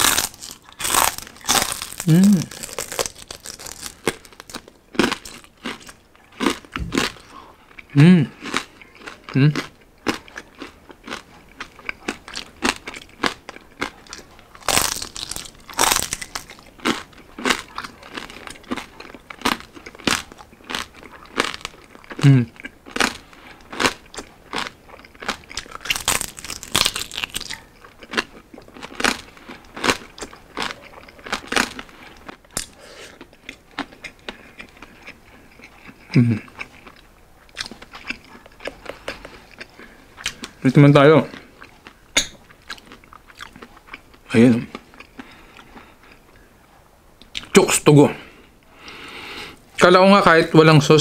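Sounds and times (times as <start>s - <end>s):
chewing crispy pork: 0.0s - 47.6s
person humming: 2.0s - 2.6s, 8.0s - 8.3s, 9.4s - 9.6s, 22.2s - 22.5s.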